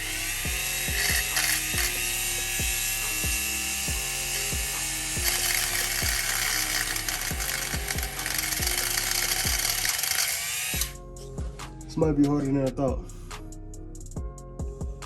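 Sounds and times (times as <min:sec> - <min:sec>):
background music with beat: 0:00.0 - 0:10.2, 0:10.8 - 0:15.0
rotary tool whining: 0:00.0 - 0:11.0.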